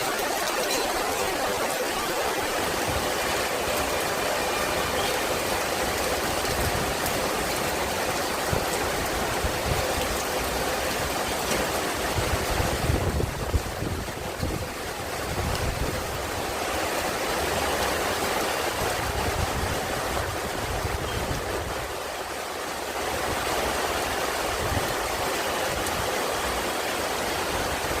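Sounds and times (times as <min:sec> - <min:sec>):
flowing water: 0:00.0 - 0:28.0
wind on microphone: 0:12.1 - 0:16.2, 0:18.8 - 0:22.0.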